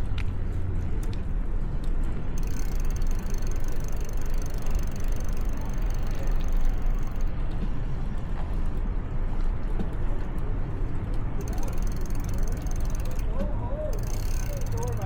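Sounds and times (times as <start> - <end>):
bicycle rumble: 0.0 - 15.0
fast high ticking: 2.4 - 7.3, 11.4 - 13.3, 14.0 - 15.0.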